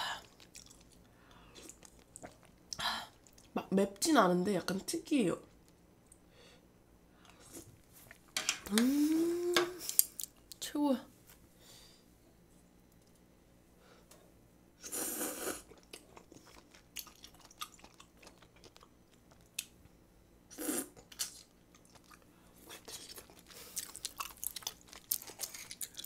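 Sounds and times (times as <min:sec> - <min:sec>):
wet chewing clicks and smacks: 0:00.2 - 0:03.5, 0:15.7 - 0:19.8, 0:22.8 - 0:26.0.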